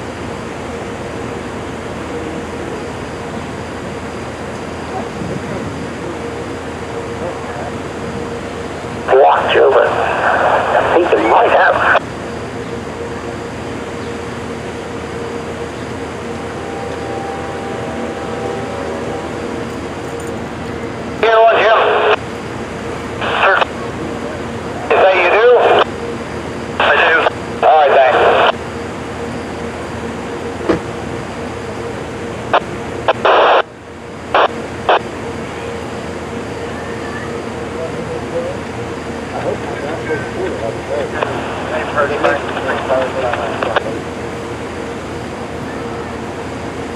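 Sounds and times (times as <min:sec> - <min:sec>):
faint steady tones: 0:00.0 - 0:46.9
train mechanical drone: 0:00.0 - 0:46.9
scanner radio hissing: 0:00.5 - 0:46.9
static bursts: 0:09.0 - 0:12.0, 0:21.2 - 0:23.8, 0:24.8 - 0:25.9, 0:26.8 - 0:28.6, 0:32.5 - 0:33.7, 0:34.3 - 0:35.1, 0:41.1 - 0:43.9.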